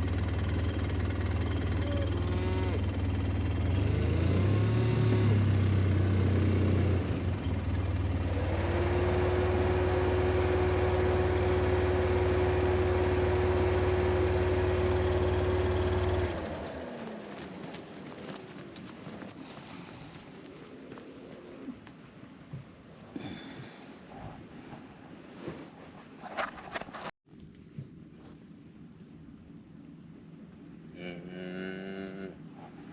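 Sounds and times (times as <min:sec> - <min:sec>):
motor vehicle engine running: 0:00.0 - 0:19.4.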